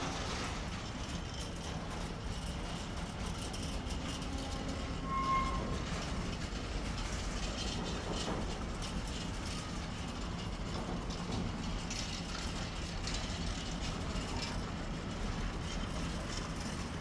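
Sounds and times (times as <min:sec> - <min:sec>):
high wheel squeal: 0:04.3 - 0:06.0.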